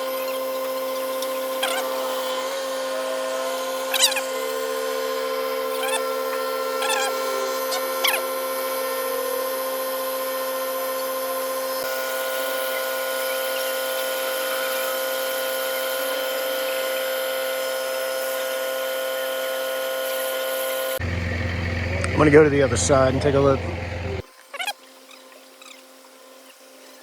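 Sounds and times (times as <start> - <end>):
truck engine and hydraulic pump whine: 0.0 - 26.4.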